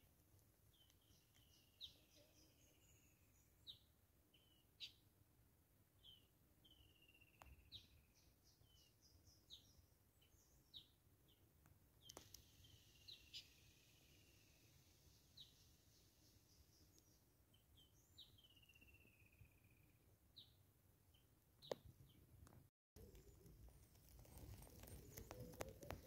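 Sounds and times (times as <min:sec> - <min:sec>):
bird chirps: 0:00.7 - 0:05.1, 0:06.0 - 0:11.4, 0:12.0 - 0:22.2, 0:24.2 - 0:26.0
faint clicks: 0:11.6 - 0:12.5, 0:22.4 - 0:26.0
bird trill: 0:17.8 - 0:19.9.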